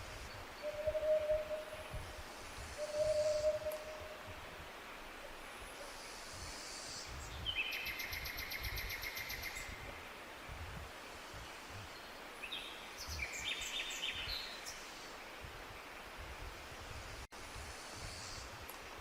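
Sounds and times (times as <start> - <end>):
steady background hiss: 0.0 - 19.0
songbirds singing: 0.1 - 4.2, 6.8 - 9.8, 11.4 - 16.2.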